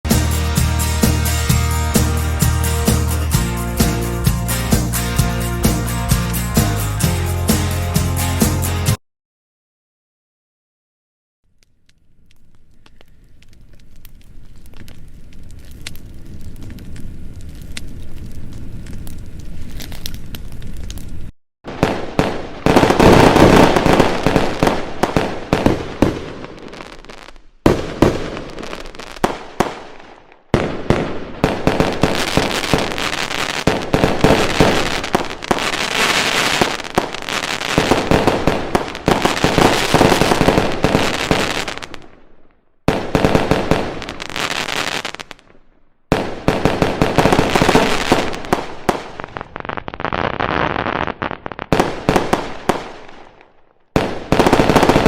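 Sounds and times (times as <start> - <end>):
fireworks banging and crackling: 13.6 - 42.3, 42.9 - 55.0.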